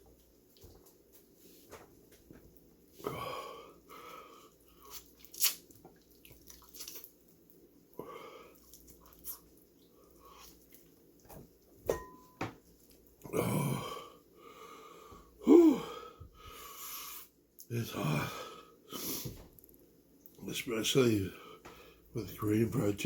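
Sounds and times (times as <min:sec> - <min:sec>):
man chewing crispy chicken: 0:04.5 - 0:11.2
man wheezing breath: 0:13.4 - 0:17.0.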